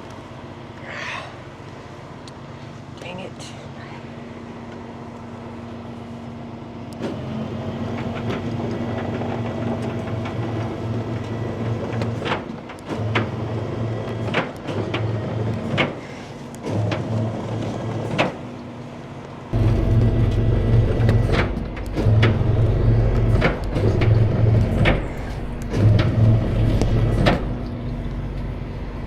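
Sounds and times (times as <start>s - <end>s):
hydraulic lift running: 4.5s - 29.0s
truck engine idling: 17.3s - 29.0s
metallic clunk: 19.6s - 28.0s.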